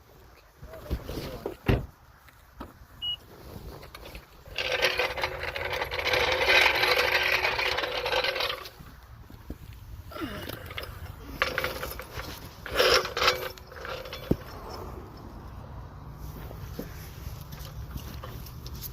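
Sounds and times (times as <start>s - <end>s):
metal tools clinking: 3.8s - 8.8s, 10.2s - 15.6s.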